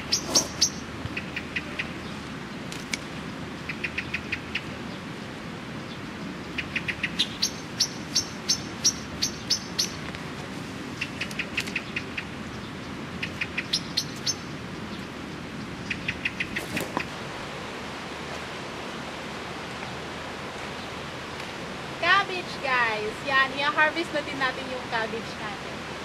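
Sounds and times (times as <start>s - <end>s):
small songbird chirping: 0.0s - 2.6s, 3.2s - 5.2s, 5.8s - 10.1s, 11.0s - 17.1s.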